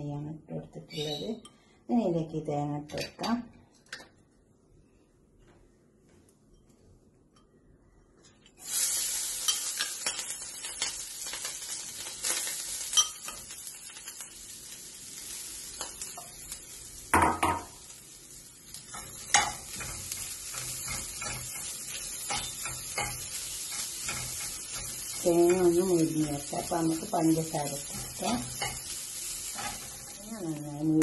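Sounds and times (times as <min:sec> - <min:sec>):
coconut sizzling in a frying pan: 0:08.6 - 0:31.0
spatula knocking and scraping a pan: 0:18.8 - 0:30.2.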